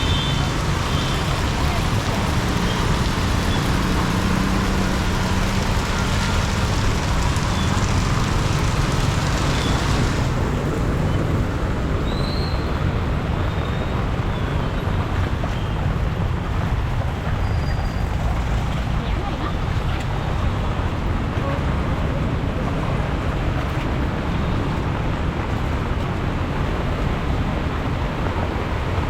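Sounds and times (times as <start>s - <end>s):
heavy rain hissing: 0.0s - 14.8s
road traffic rumble: 0.0s - 29.0s.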